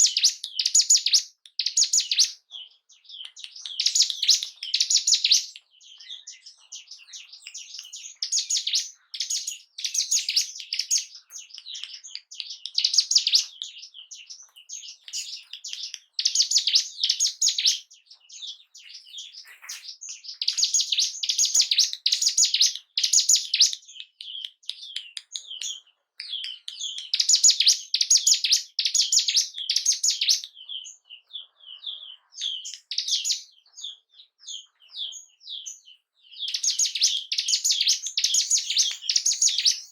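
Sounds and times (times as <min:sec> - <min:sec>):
bird chattering song: 0:00.0 - 0:39.9
single bird chirps: 0:00.0 - 0:39.9.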